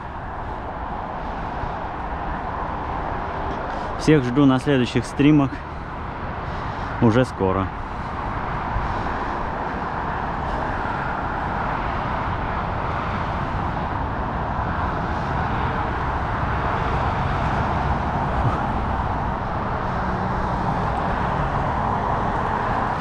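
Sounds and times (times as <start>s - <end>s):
wind noise on microphone: 7.7s - 23.0s.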